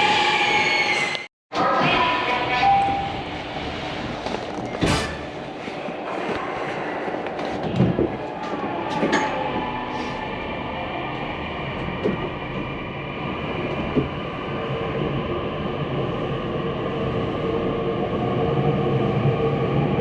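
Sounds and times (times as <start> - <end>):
wheels rumbling on rail: 2.0 - 20.0.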